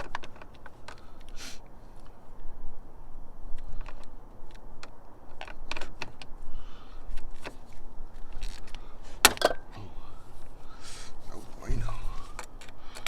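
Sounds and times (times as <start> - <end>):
metal hand tools clinking: 9.3 - 9.7.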